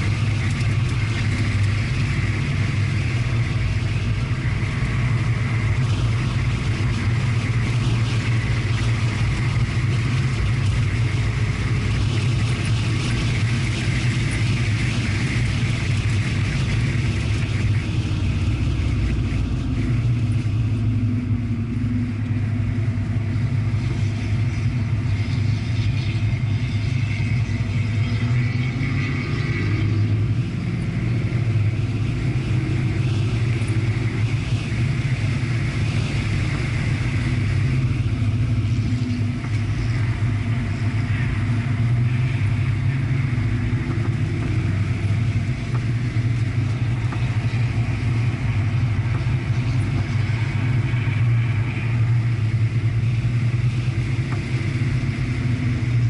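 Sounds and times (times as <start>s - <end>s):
car engine: 0.0s - 56.0s
tyre and road noise: 0.0s - 56.0s.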